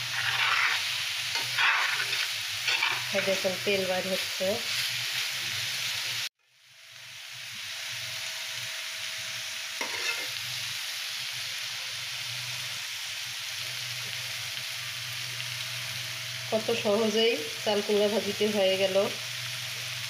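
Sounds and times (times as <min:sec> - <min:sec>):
spoon scraping pan: 0:00.0 - 0:03.5, 0:09.8 - 0:10.4
food sizzling in oil: 0:00.0 - 0:20.0.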